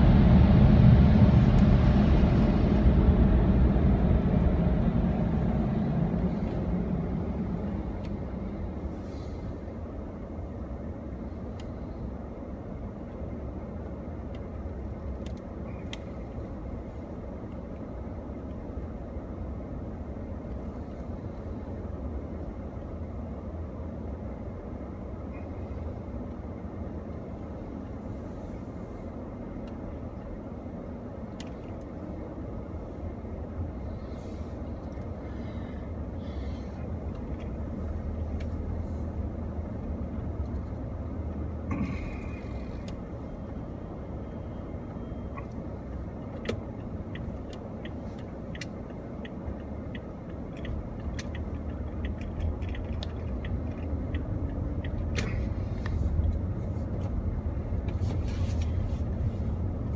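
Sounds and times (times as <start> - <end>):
car interior rumble: 0.0 - 59.9
light clicks and ticks: 45.4 - 56.4.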